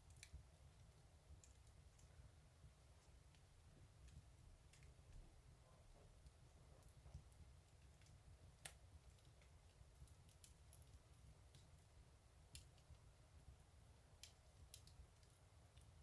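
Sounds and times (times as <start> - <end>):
fire crackling: 0.0 - 16.0
sharp pops from fire: 6.2 - 13.0.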